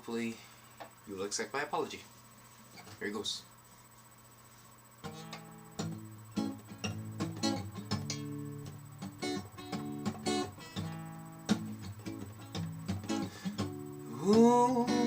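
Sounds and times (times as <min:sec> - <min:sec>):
acoustic guitar strumming: 0:05.0 - 0:15.0.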